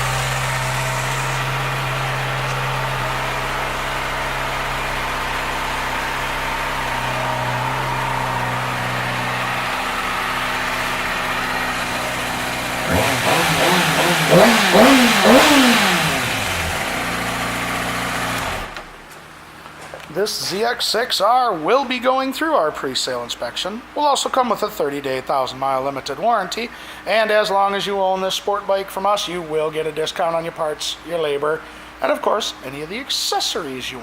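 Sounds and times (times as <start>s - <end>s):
motorcycle engine idling and revving: 0.0s - 19.5s.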